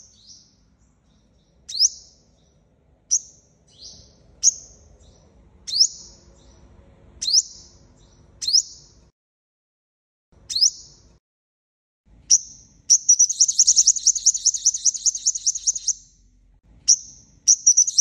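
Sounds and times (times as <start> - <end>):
sunbird sharp high calls: 10.5 - 11.0, 12.3 - 16.2, 16.9 - 18.0.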